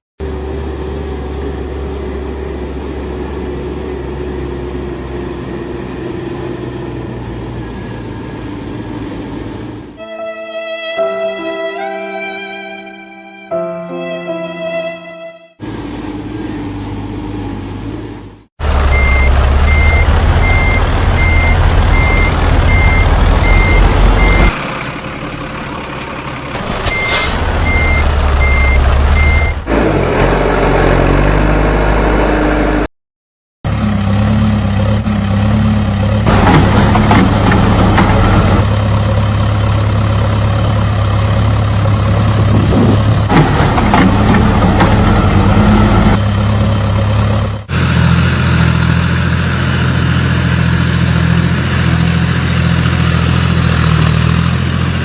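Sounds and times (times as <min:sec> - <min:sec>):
heavy vehicle engine running: 0:00.2 - 0:10.0, 0:15.6 - 0:32.9, 0:33.7 - 0:55.0
reversing alarm beeping: 0:18.9 - 0:24.6, 0:26.7 - 0:29.6.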